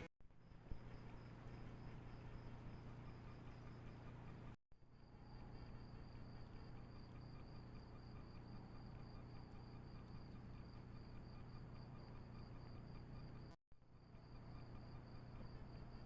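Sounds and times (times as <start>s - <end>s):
faint low hum: 0.0s - 16.0s
insects chirping: 5.0s - 16.0s.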